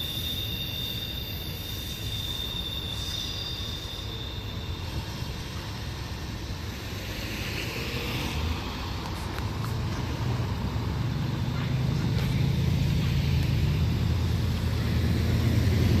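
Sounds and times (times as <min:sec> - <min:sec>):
vehicle engine rumble: 0:05.0 - 0:16.0.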